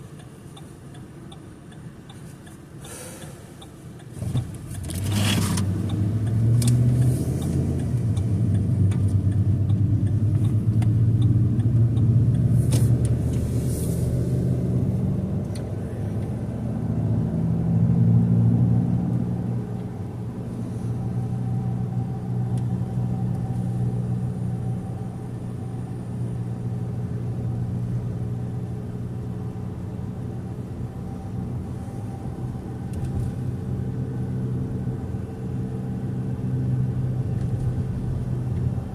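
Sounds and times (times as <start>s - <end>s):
car engine running: 0.0s - 38.9s.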